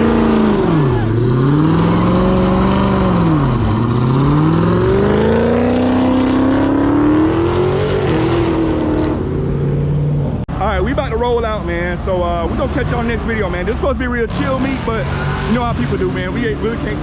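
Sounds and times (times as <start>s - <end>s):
car engine revving hard: 0.0s - 10.4s, 13.9s - 17.0s.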